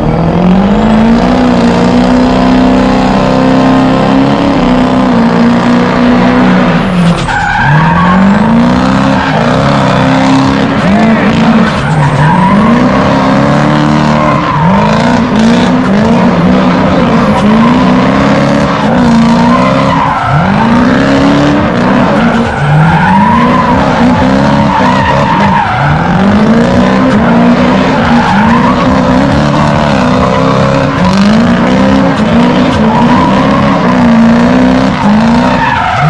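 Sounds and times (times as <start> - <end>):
car engine revving: 0.0 - 36.0
tyres screeching: 0.3 - 36.0.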